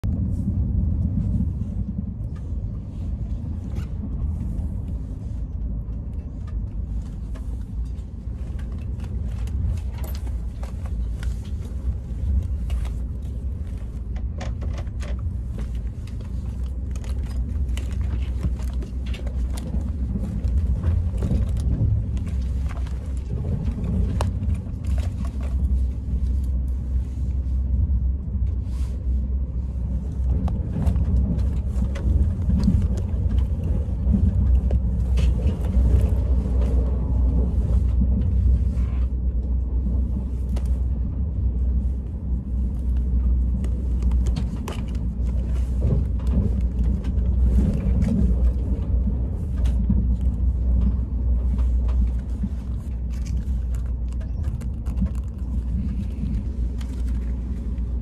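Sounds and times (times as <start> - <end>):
train rumbling: 0.0 - 58.0
hands handling knitted bag: 41.6 - 58.0.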